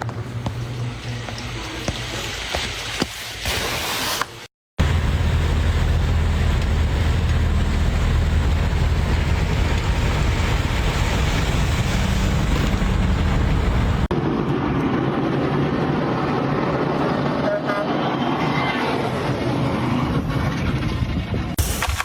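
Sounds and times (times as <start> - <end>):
vehicle engine hum: 0.0 - 2.9, 4.8 - 17.7
road and wind noise: 0.0 - 3.0, 4.8 - 22.0.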